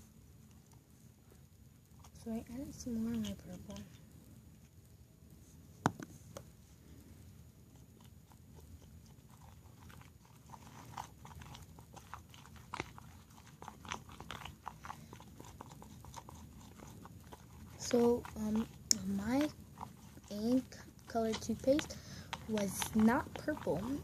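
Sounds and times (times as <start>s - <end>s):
spoon stirring slime: 2.0s - 4.0s, 7.8s - 24.0s.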